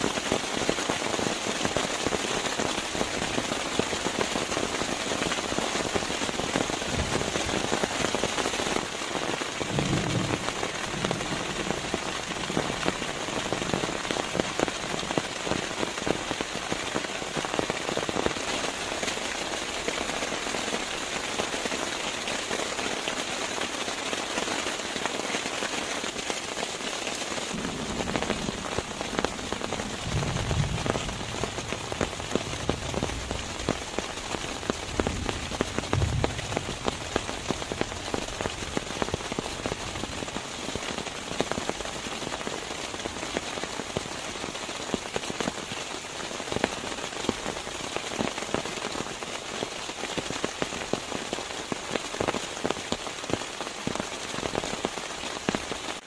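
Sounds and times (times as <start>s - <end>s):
rain pattering: 0.0s - 56.0s
low rumble: 27.5s - 33.1s.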